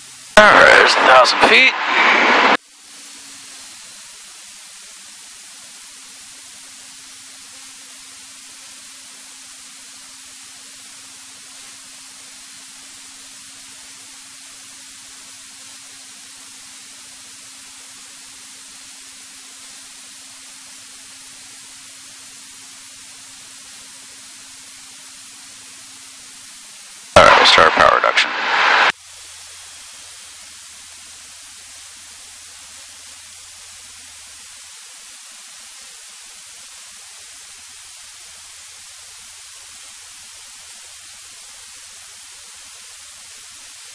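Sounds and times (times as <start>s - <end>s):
intercom electronic hiss: 0.4s - 4.1s, 27.2s - 28.9s.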